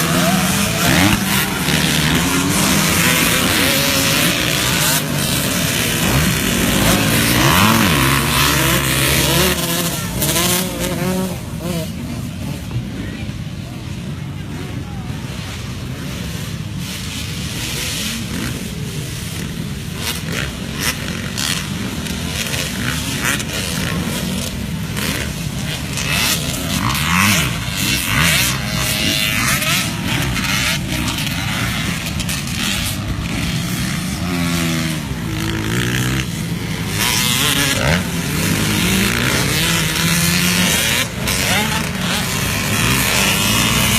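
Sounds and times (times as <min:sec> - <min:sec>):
motocross bike engines revving: 0:00.0 - 0:43.9.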